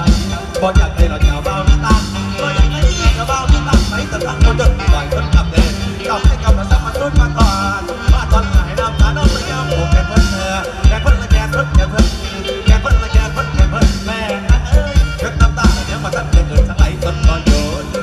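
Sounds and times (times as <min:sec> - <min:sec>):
bass line: 0:00.0 - 0:18.0
drum-kit beat: 0:00.0 - 0:18.0
wavering lead melody: 0:00.0 - 0:18.0.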